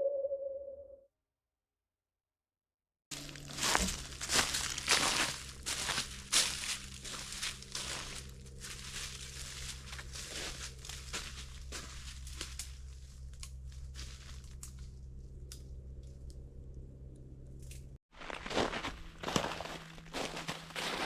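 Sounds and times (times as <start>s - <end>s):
crunching and crinkling: 3.1s - 16.4s, 17.6s - 21.0s
steady low hum: 3.2s - 21.0s.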